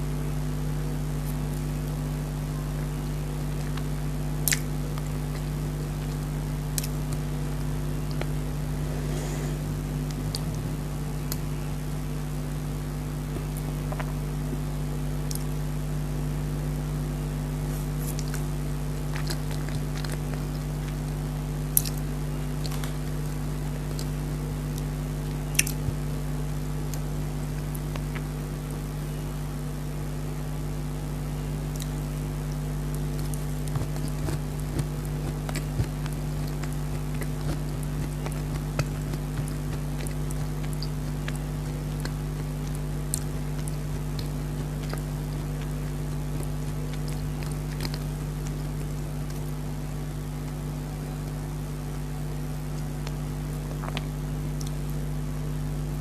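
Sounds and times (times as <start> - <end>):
steady low hum: 0.0 - 56.0
person eating cake: 3.6 - 12.3, 17.6 - 21.2, 31.7 - 52.0
mouth clicks and smacks: 4.4 - 4.7, 10.1 - 11.5, 25.5 - 26.0, 31.7 - 49.6.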